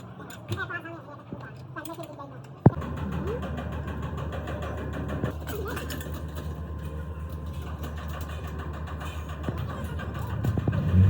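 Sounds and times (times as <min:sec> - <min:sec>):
faint voices: 0:00.0 - 0:11.0
engine humming: 0:02.6 - 0:11.0.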